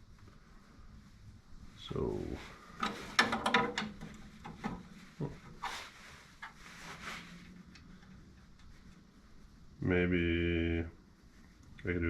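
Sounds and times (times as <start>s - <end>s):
faint steady hum: 0.0s - 12.0s
short scraping sounds: 5.1s - 7.6s.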